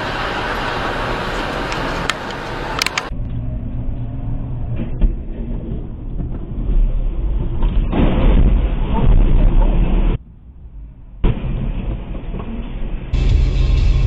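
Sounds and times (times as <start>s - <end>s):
road and engine rumble: 0.0s - 9.0s, 9.9s - 14.0s
sharp clicks: 1.7s - 3.2s.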